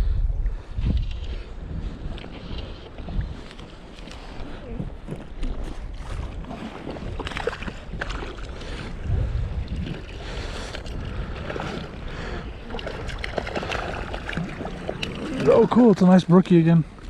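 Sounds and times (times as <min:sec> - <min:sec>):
wind buffeting microphone: 0:00.0 - 0:17.0
water lapping and splashing: 0:00.4 - 0:17.0.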